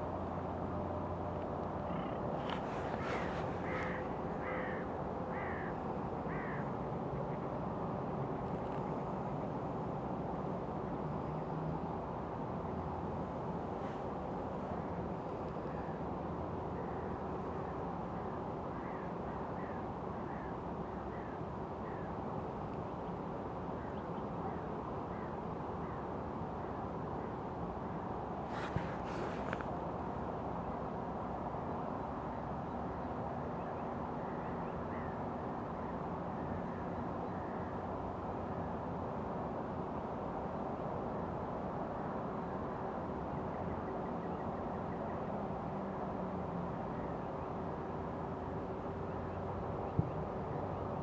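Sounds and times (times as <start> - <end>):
low outdoor background noise: 0.0 - 51.0
bird calling: 1.8 - 5.7.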